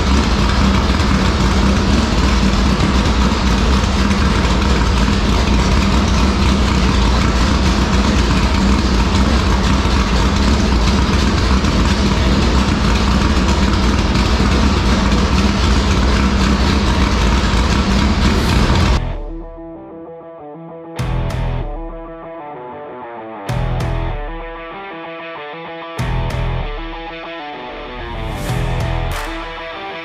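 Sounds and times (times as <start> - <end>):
race car engine idling loudly: 0.0 - 19.4, 23.5 - 24.4, 26.0 - 27.0, 28.1 - 29.8.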